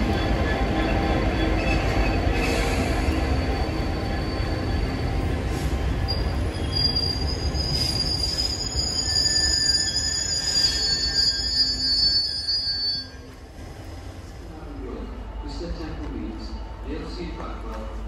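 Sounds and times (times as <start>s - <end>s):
wheels squealing on rails: 0.0s - 13.7s
train rumbling past: 0.0s - 18.0s.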